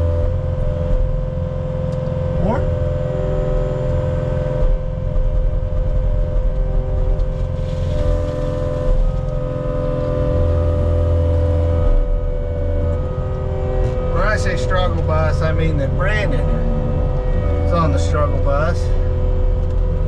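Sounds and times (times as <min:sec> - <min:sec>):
diesel engine rumbling with whine: 0:00.0 - 0:20.0.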